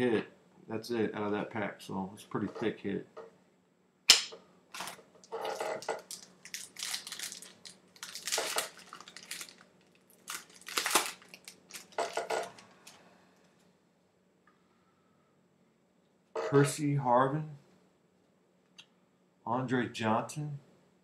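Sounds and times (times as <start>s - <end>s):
wrapper tearing and crinkling: 4.7s - 13.0s
cards rustling: 4.8s - 13.0s.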